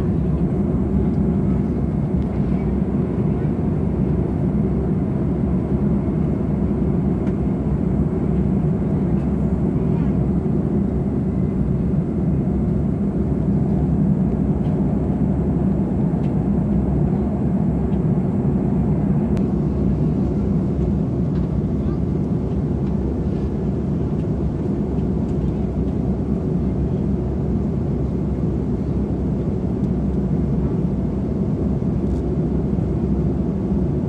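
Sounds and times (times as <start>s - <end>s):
aircraft cabin engine noise: 0.0s - 34.0s.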